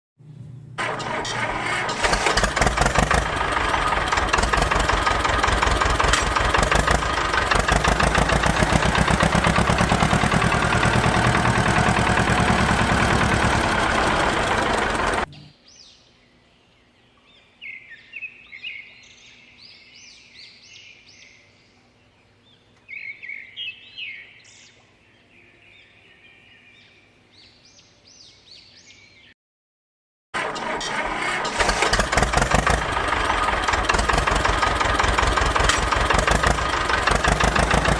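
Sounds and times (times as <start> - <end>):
small engine running: 0.8 - 15.3, 30.4 - 37.9.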